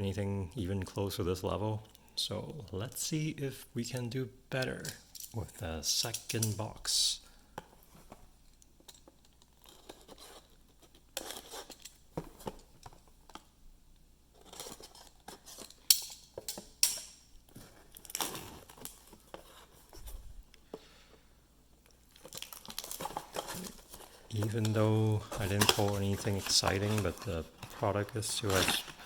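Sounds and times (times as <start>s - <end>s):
packaging crinkling and tearing: 17.6s - 19.8s, 22.0s - 29.0s.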